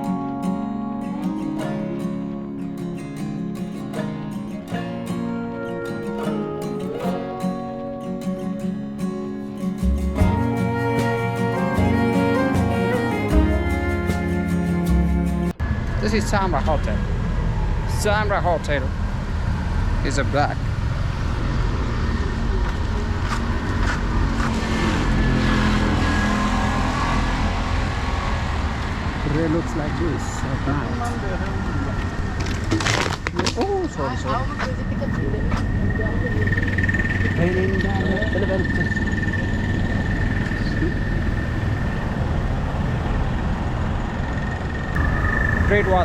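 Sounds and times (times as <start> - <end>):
low rumble of traffic: 15.4 - 46.0
high insect trill: 34.7 - 42.6.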